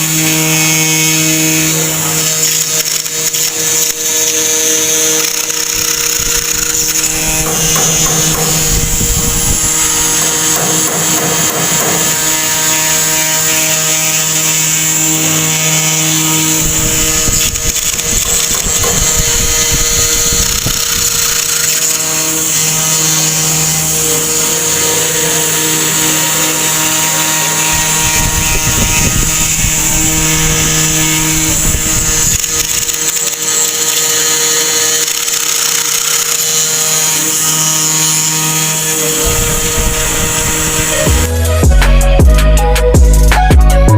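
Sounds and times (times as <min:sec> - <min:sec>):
spindle motor whine: 0:00.0 - 0:42.8
low cutting rumble: 0:06.2 - 0:10.6, 0:39.1 - 0:43.9.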